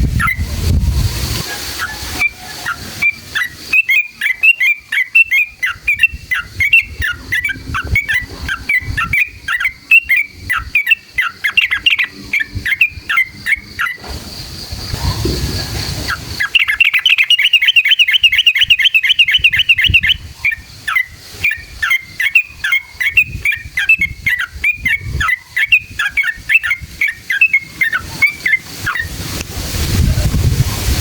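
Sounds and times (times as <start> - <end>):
bird singing trills and chirps: 0.0 - 0.4, 1.8 - 14.1, 14.9 - 29.2
low rushing noise: 0.0 - 3.4, 14.0 - 16.6.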